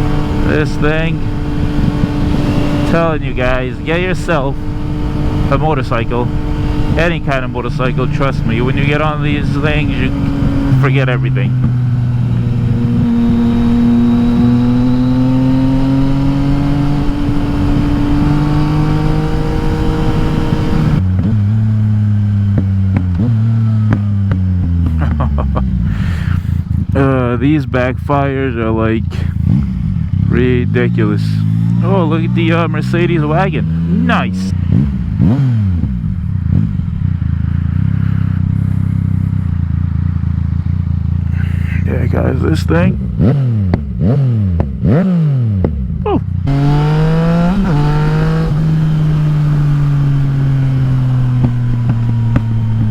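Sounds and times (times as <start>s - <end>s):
exhaust backfires popping: 0.0s - 52.9s
motorcycle engine cruising: 0.0s - 52.9s
motorcycle engine pulling under load: 46.5s - 52.9s.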